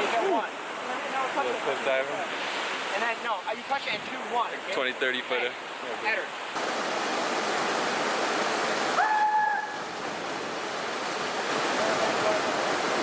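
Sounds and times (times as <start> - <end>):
waterfall rushing: 0.0 - 13.0
high held shout: 9.0 - 9.8.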